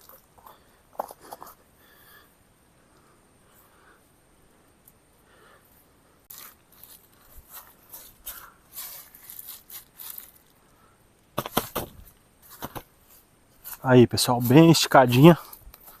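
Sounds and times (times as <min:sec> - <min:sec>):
tarp rustling and scraping: 0:06.3 - 0:10.5
sharp knocks: 0:11.4 - 0:12.9.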